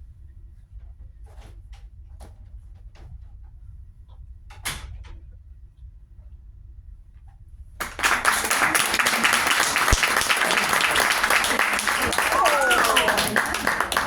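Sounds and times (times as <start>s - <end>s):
audience applause: 7.8s - 14.0s.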